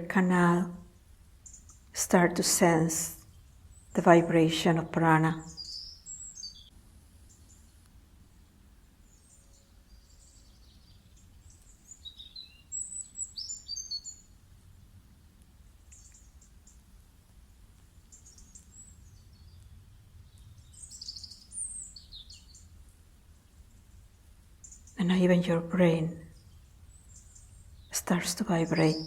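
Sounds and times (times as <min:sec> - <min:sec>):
faint low hum: 0:00.0 - 0:29.0
birds chirping and singing: 0:05.3 - 0:06.7, 0:09.2 - 0:14.2, 0:20.3 - 0:22.6, 0:24.6 - 0:29.0.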